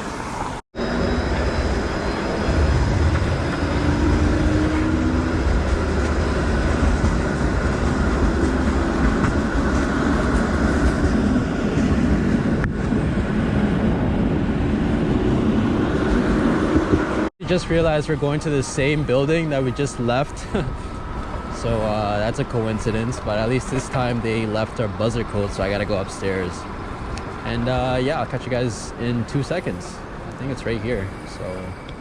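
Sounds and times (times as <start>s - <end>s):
road noise: 0.0s - 32.0s
wind rumble on camera: 1.2s - 17.3s.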